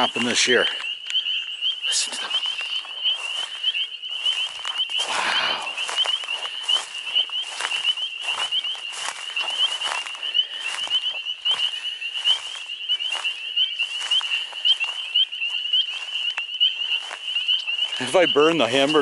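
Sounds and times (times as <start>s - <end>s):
frogs calling in chorus: 0.0s - 19.0s.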